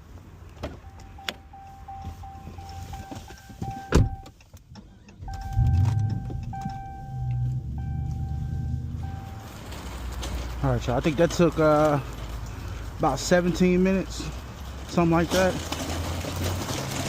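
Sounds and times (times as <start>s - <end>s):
electronic car chime tone: 0.8s - 4.3s, 5.2s - 9.6s
low rumble: 5.2s - 10.4s.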